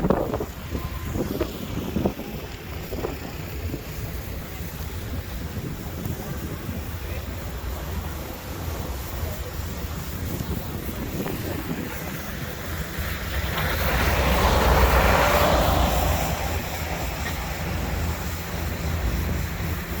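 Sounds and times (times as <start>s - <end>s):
wind rumbling on microphone: 0.0s - 20.0s
vehicle passing by: 12.1s - 20.0s.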